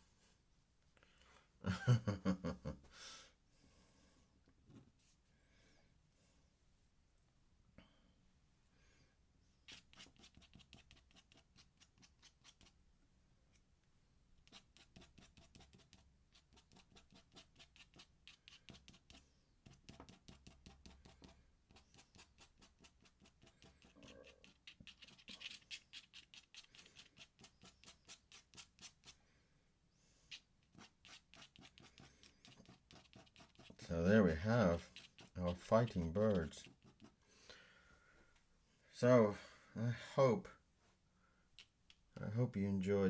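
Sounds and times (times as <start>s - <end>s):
pen scratching on paper: 9.6s - 12.8s, 14.4s - 29.2s, 30.3s - 37.2s.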